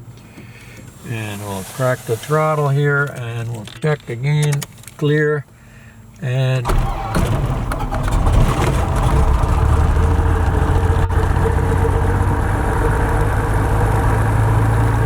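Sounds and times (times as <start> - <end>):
aircraft engine starting and idling: 6.6 - 15.0.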